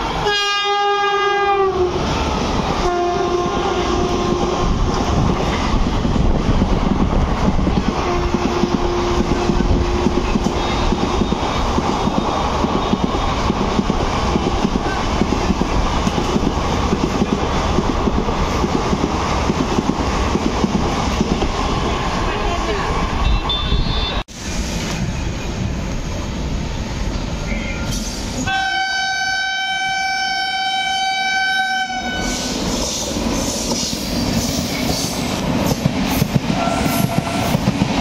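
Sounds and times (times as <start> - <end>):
train coaches rumbling on track: 0.0 - 38.0
train horn blasts: 0.2 - 1.9, 2.8 - 4.7, 8.0 - 11.0, 23.2 - 24.2, 27.5 - 32.5, 36.6 - 37.5.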